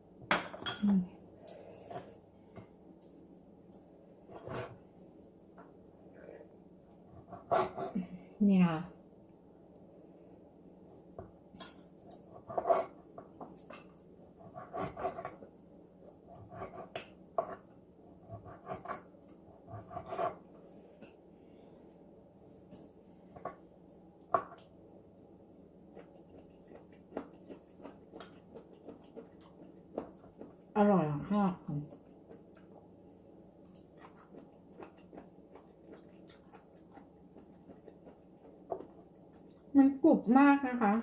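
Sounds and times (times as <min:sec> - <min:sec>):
person chewing: 0:25.9 - 0:30.7, 0:31.9 - 0:32.9, 0:33.6 - 0:39.7.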